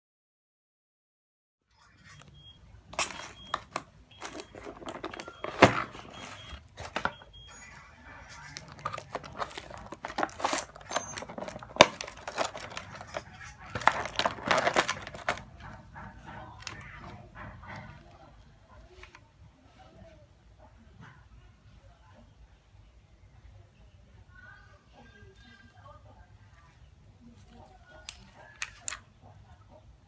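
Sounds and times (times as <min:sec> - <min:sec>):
rustling and handling noise: 0:02.1 - 0:20.2, 0:25.2 - 0:29.7.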